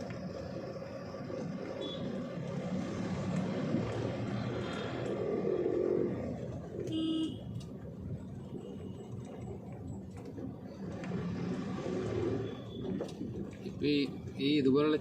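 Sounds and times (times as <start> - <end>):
truck engine and road noise: 0.0 - 15.0
vehicle horn toot: 1.8 - 2.1, 6.9 - 7.6.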